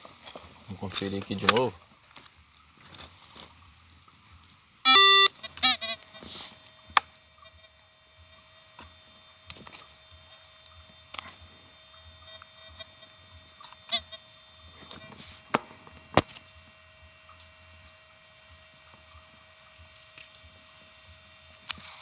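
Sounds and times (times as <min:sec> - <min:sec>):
metal detector beep: 0:04.8 - 0:06.5, 0:12.0 - 0:15.2.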